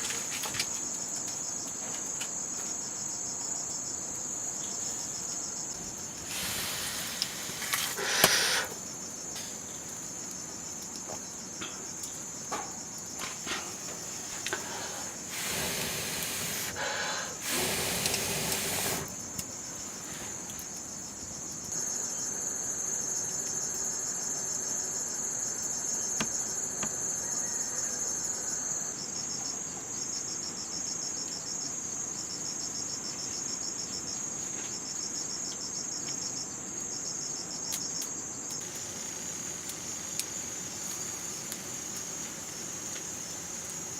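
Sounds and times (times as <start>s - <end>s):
crickets trilling: 0.0s - 43.9s
louder insect trill: 2.9s - 34.2s, 36.3s - 43.9s
short bursts of noise: 6.2s - 8.8s, 14.4s - 19.2s.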